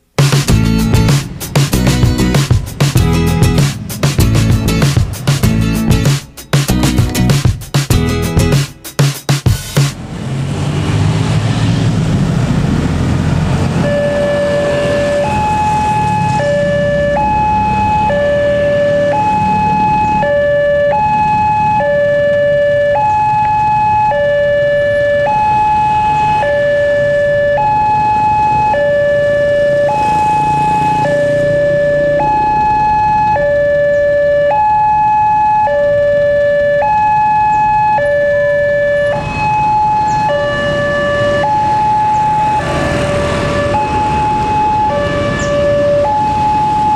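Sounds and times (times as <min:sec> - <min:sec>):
truck engine rumble: 0:00.0 - 0:46.9
two-tone crossing alarm: 0:13.8 - 0:46.9.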